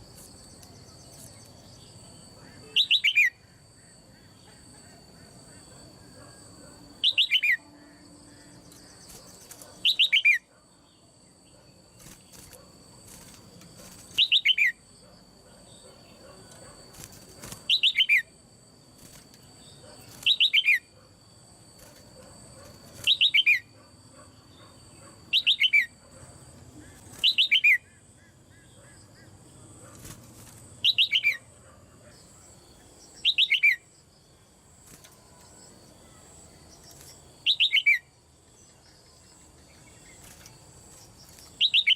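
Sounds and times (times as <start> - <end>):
bird calling falling chirps: 26.9 - 27.9.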